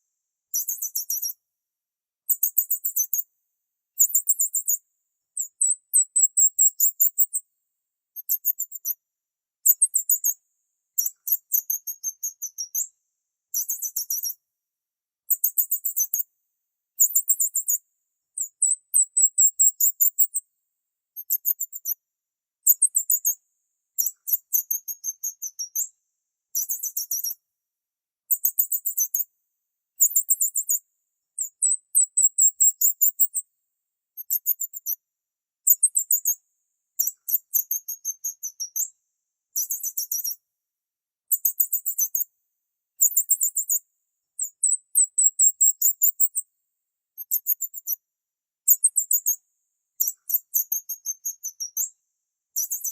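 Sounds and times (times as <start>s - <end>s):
small bird chirping: 0.0s - 1.4s, 2.2s - 3.3s, 4.0s - 7.4s, 8.2s - 9.0s, 9.6s - 14.4s, 15.3s - 16.3s, 17.0s - 20.4s, 21.2s - 22.0s, 22.6s - 27.4s, 28.3s - 29.3s, 30.0s - 33.5s, 34.2s - 35.0s, 35.6s - 36.4s, 37.0s - 40.4s, 41.3s - 42.3s, 43.0s - 46.5s, 47.2s - 48.0s, 48.6s - 49.4s, 50.0s - 52.9s.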